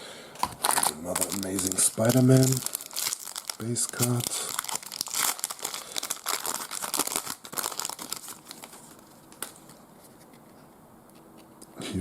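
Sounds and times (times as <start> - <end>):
plastic wrapper crinkling and tearing: 0.4 - 9.8.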